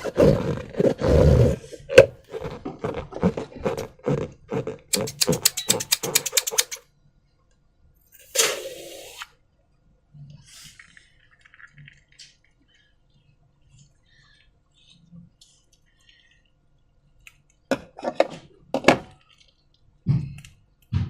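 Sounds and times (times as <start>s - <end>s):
short hiss: 8.2s - 9.3s.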